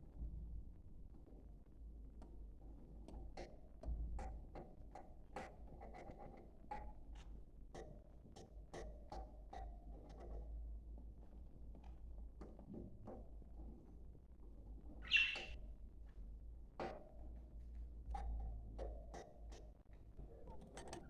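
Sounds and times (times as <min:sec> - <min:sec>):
budgerigars chirping: 0:15.0 - 0:15.6.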